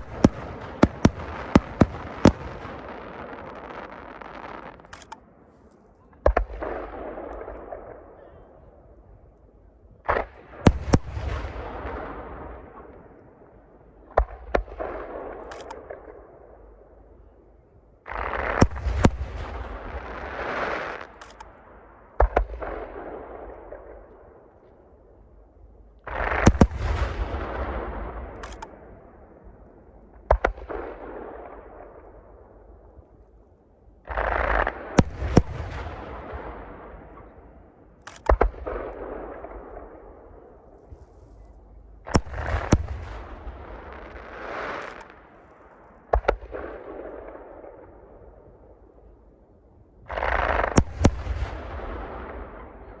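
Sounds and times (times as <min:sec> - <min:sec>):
rolling echo of bangs: 0:00.0 - 0:05.2, 0:06.2 - 0:08.8, 0:10.0 - 0:13.4, 0:18.0 - 0:24.6, 0:26.0 - 0:32.4, 0:34.0 - 0:40.8, 0:42.0 - 0:48.2, 0:50.1 - 0:53.0
fireworks bursting: 0:00.0 - 0:08.2, 0:18.0 - 0:24.4, 0:26.0 - 0:29.3, 0:34.0 - 0:47.9, 0:50.1 - 0:53.0.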